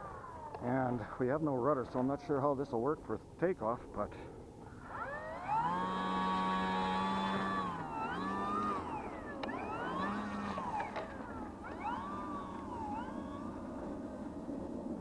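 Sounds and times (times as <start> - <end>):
electric model plane motor whining: 0.0 - 0.7, 4.7 - 15.0.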